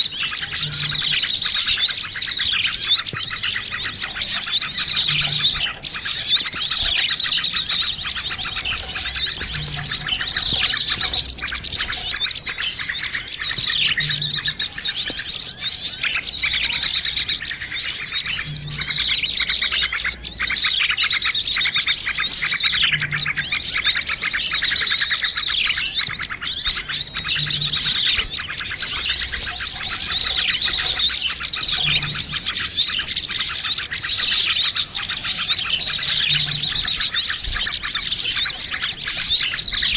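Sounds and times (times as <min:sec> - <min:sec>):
small songbirds chirping and trilling: 0:00.0 - 0:39.9.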